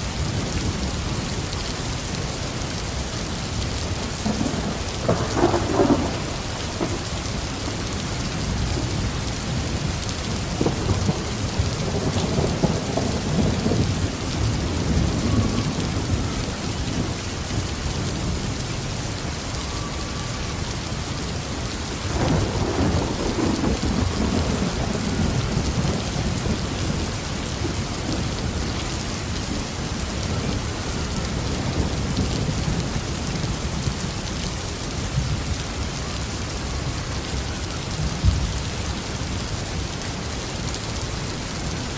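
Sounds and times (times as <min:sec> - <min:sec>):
heavy rain on a roof: 0:00.0 - 0:41.9
rolling thunder: 0:03.5 - 0:18.5, 0:22.0 - 0:34.4.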